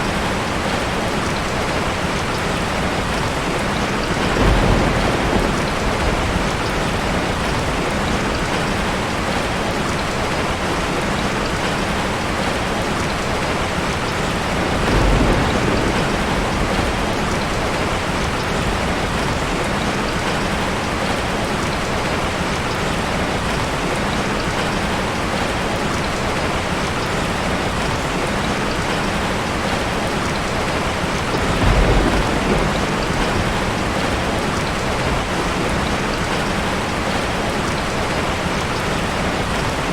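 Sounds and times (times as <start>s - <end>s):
low rumbles of thunder: 0.0s - 10.4s, 13.9s - 21.7s, 27.2s - 39.8s
heavy rain falling: 0.0s - 39.9s.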